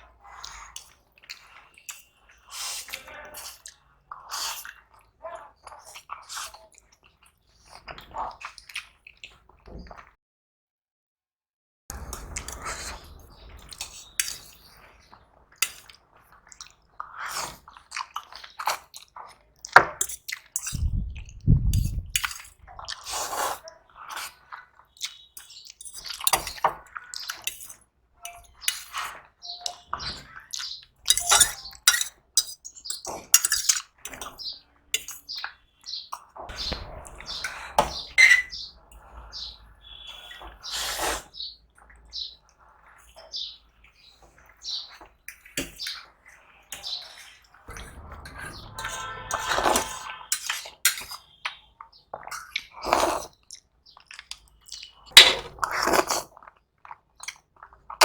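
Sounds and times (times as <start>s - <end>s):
wet chewing and mouth smacks: 12.0s - 27.8s, 50.4s - 58.0s
heavy low thumps: 20.8s - 22.0s.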